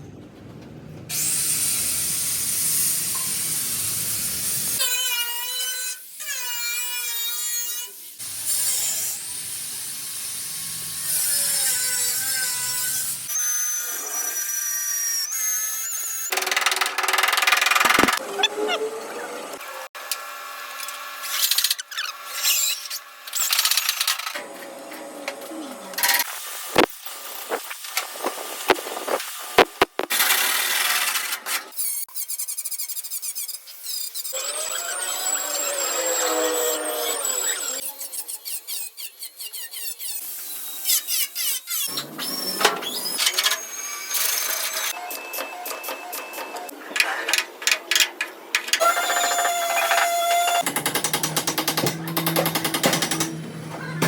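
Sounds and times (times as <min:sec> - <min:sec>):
power tool whining: 0:34.4 - 0:37.9.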